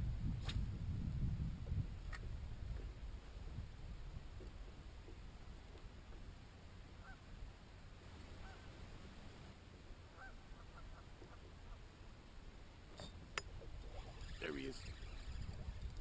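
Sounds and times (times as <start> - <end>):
faint bird calls: 7.0 - 7.2, 8.4 - 8.7, 10.1 - 11.8.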